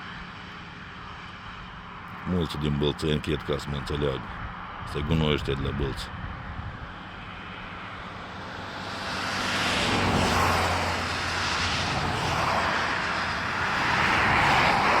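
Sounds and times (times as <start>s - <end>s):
low engine hum: 0.0s - 15.0s
vehicles passing: 0.0s - 15.0s.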